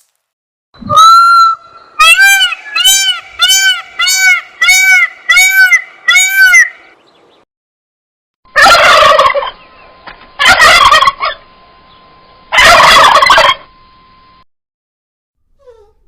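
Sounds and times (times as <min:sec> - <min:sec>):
turkey gobbling: 0:00.9 - 0:06.9, 0:08.5 - 0:11.5, 0:12.5 - 0:13.7.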